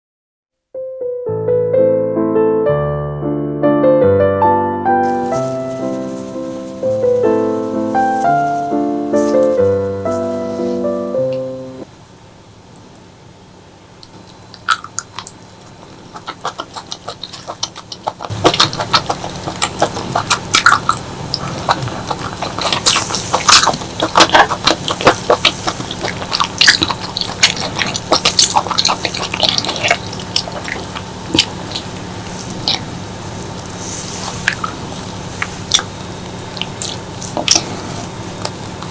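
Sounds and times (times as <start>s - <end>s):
wet eating sounds: 14.0s - 38.9s.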